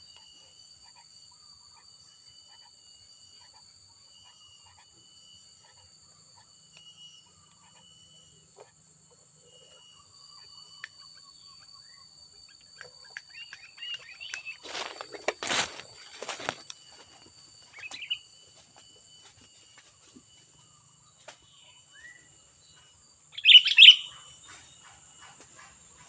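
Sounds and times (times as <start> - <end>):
insects buzzing: 0.0 - 26.0
bird chirping: 2.4 - 15.1, 17.6 - 18.4, 19.9 - 26.0
bird harsh calls: 17.7 - 18.3, 23.4 - 26.0.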